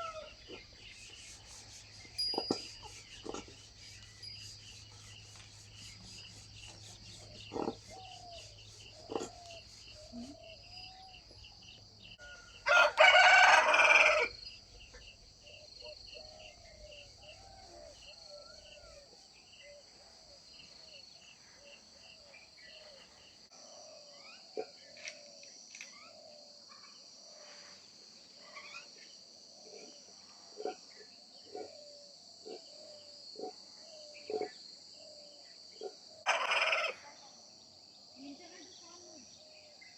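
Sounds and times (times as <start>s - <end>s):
rooster crowing: 0.0s - 0.4s, 12.2s - 14.4s, 36.3s - 37.0s
high insect chirring: 0.0s - 12.2s.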